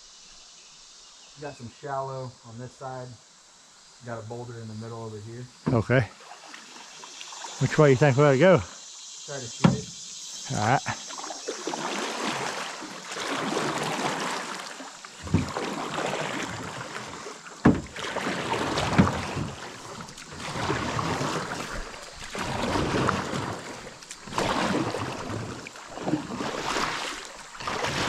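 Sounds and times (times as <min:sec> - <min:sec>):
paddle strokes and splashing: 0:05.7 - 0:08.0, 0:09.6 - 0:28.0
rushing water: 0:05.7 - 0:28.0
sharp knocks: 0:09.6 - 0:10.0.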